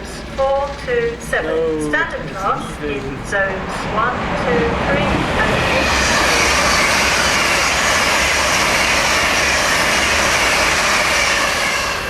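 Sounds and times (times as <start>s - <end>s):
train rushing with high whine: 0.0s - 12.0s.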